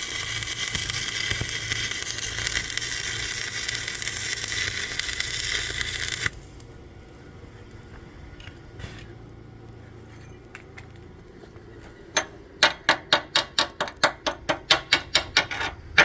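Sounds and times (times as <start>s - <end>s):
arc welding crackling: 0.0s - 9.4s.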